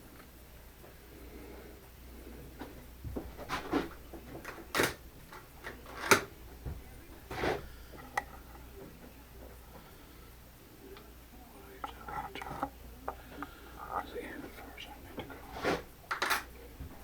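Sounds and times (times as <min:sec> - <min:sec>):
handling knocks and clicks: 0:02.6 - 0:09.8, 0:11.8 - 0:17.0.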